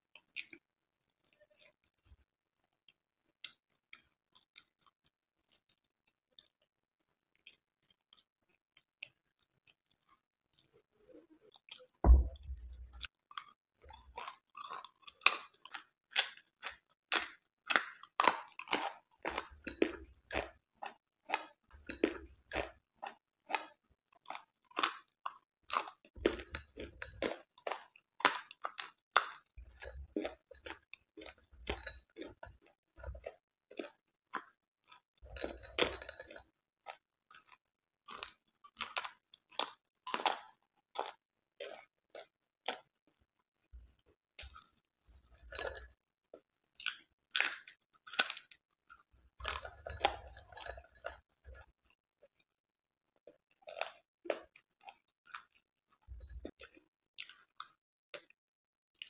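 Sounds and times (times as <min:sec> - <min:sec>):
chewing crunchy food: 0:00.0 - 0:59.0
soft low thumps: 0:12.0 - 0:13.0.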